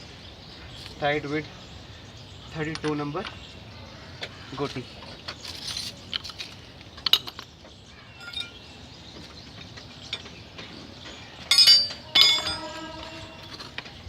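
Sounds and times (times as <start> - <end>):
steel tools clinking: 8.1 - 8.7, 11.5 - 13.8.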